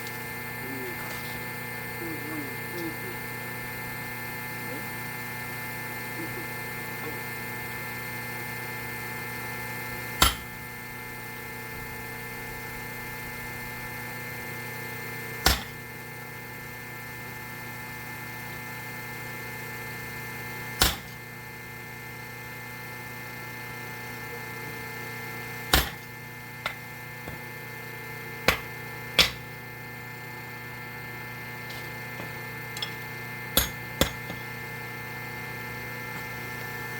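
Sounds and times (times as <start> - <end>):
steady machine hum: 0.0 - 36.9
hammer striking hot steel: 10.2 - 10.8, 15.4 - 15.9, 20.8 - 21.3, 25.6 - 27.6, 28.4 - 29.7, 31.7 - 34.6.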